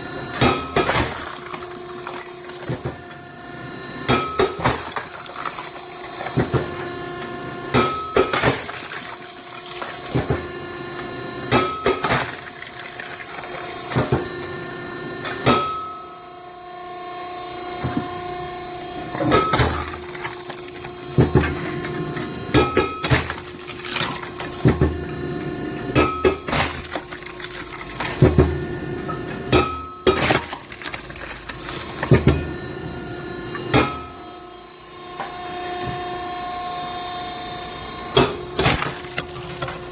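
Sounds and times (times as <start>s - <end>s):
wood cracking apart: 0.8s - 2.7s, 4.6s - 6.6s, 8.3s - 10.2s, 12.1s - 14.0s, 19.6s - 21.2s, 23.0s - 24.7s, 26.5s - 28.3s, 30.1s - 32.2s, 38.6s - 39.9s
split wood clattering down: 30.1s - 32.3s, 38.6s - 39.9s.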